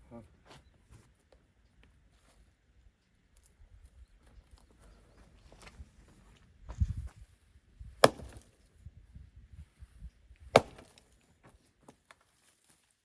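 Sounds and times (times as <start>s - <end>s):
axe splitting firewood: 8.0s - 8.6s, 10.5s - 11.3s.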